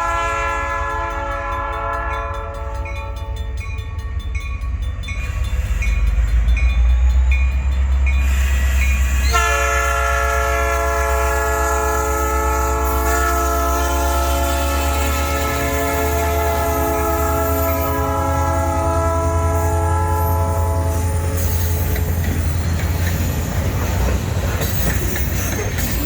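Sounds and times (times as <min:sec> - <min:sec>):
locomotive air horn: 0:00.0 - 0:03.2, 0:09.0 - 0:21.7
train rumbling past: 0:00.0 - 0:26.0.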